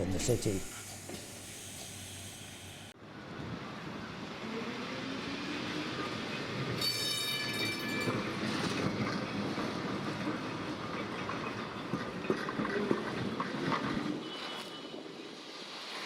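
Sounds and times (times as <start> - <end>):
tram wheels squealing: 5.3 - 16.0.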